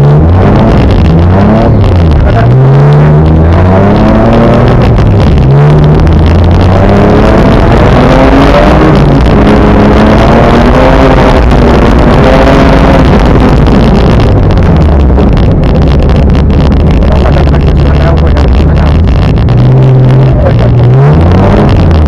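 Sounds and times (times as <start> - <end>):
car engine revving with gear changes: 0.0 - 22.0.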